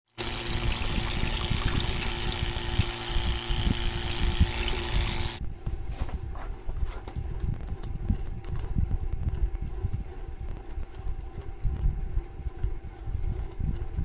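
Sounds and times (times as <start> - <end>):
pump motor hum: 0.1 - 5.5.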